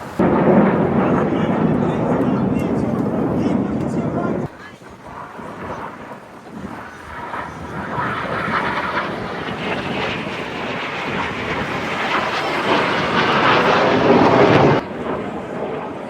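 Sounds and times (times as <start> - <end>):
aircraft engines roaring: 0.0 - 16.0.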